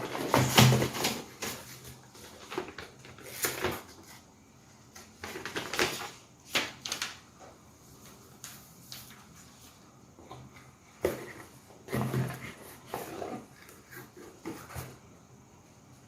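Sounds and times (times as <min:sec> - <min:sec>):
packaging taps and rustles: 0:00.0 - 0:04.1, 0:05.0 - 0:07.1.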